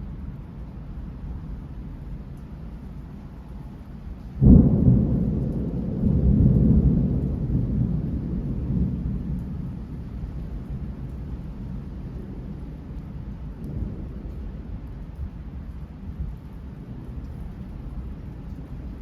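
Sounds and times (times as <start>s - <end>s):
thunder rumbling: 4.3s - 19.0s.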